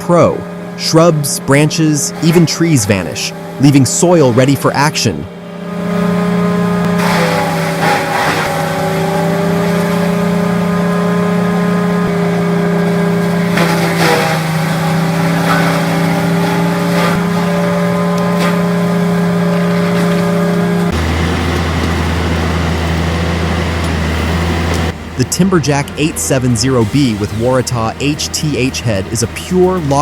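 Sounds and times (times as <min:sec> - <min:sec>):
heavy machine running: 0:00.0 - 0:30.0
wood cracking: 0:06.9 - 0:10.4, 0:13.3 - 0:18.7
deep steady drone: 0:09.1 - 0:30.0.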